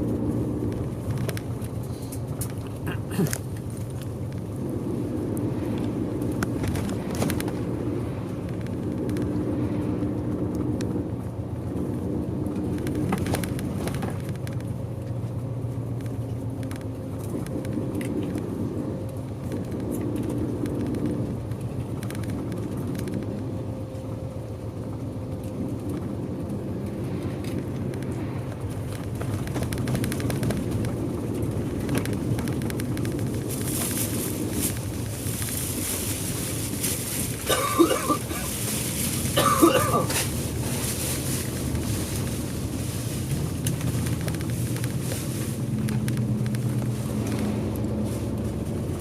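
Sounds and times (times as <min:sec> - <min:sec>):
bus engine rumble: 0:00.0 - 0:49.0
small rattles: 0:27.4 - 0:48.9.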